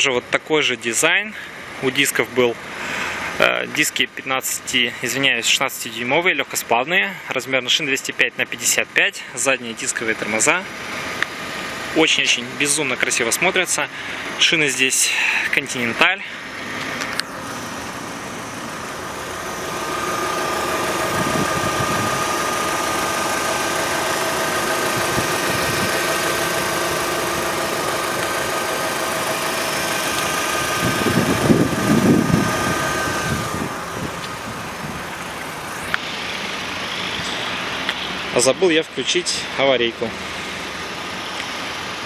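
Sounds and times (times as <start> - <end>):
engine-like hum: 10.7 - 42.0
wind across microphone: 30.9 - 35.1.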